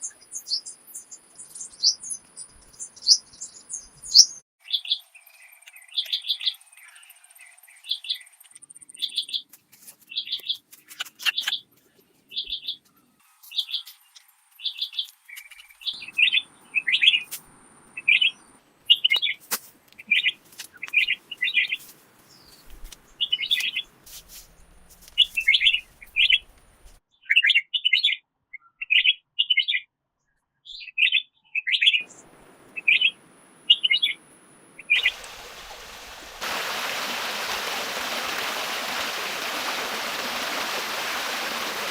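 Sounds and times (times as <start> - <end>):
small bird chirping: 0.0 - 9.5, 12.3 - 19.4, 20.0 - 23.9, 25.2 - 29.9, 30.6 - 34.2.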